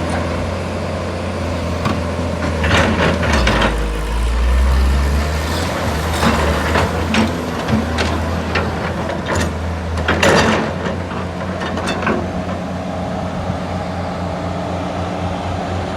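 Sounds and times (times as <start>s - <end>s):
excavator engine running: 0.0s - 15.9s
metal knocks and clanks: 1.9s - 4.5s.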